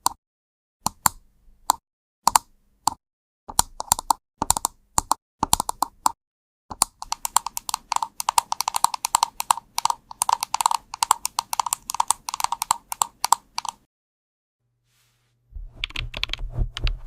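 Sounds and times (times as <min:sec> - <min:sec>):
computer keyboard typing: 0:03.5 - 0:06.1, 0:06.7 - 0:13.9, 0:15.8 - 0:17.0.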